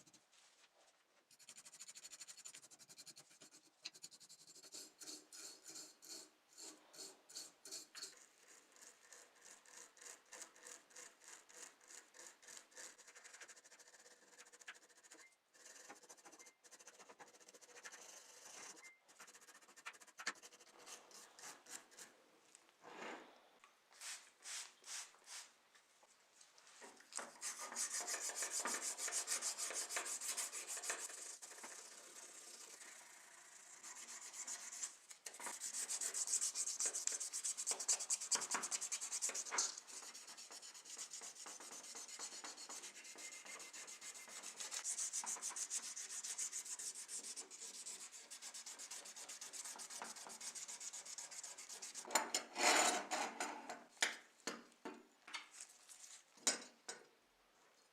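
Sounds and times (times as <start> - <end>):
hand sanding strokes: 27.2 - 52.1.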